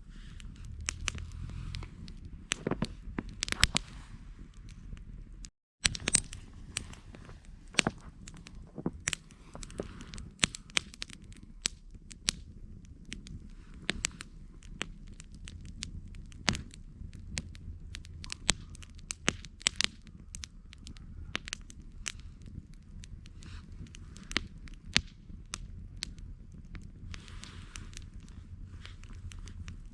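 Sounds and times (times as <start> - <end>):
low rumble of flames: 0.0 - 29.9
wood crackling and popping: 0.0 - 29.9.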